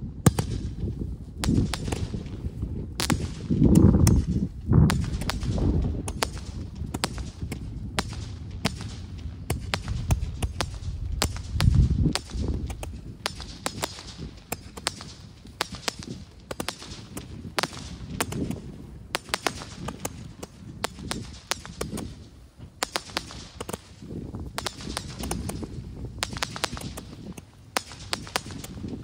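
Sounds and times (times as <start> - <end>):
fireworks popping and cracking: 0.2 - 29.0
deep firework boom: 1.4 - 13.6.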